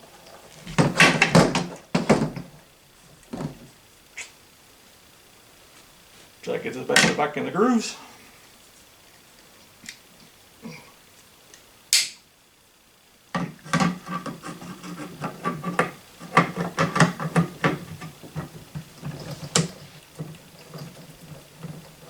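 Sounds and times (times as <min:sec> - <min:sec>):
metal parts clicking and scraping: 0:13.8 - 0:22.0.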